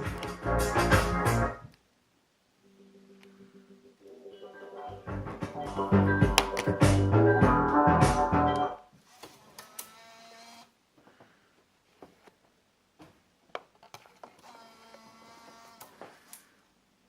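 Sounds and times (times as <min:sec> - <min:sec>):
small motor whirring: 0:09.6 - 0:10.7, 0:14.4 - 0:16.0.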